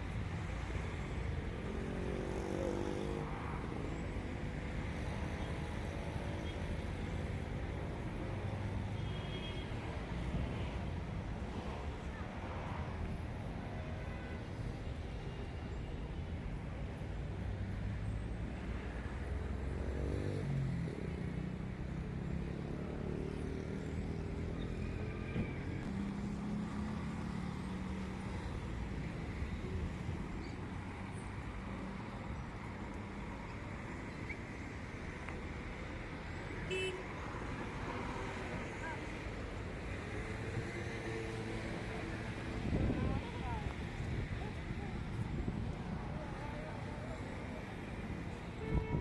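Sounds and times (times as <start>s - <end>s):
road noise: 0.0s - 49.0s.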